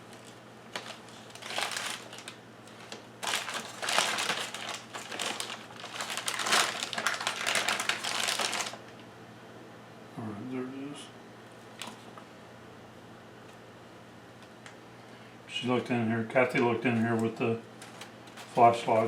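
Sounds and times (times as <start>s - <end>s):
bag crinkling: 0.0s - 8.9s, 17.8s - 18.8s.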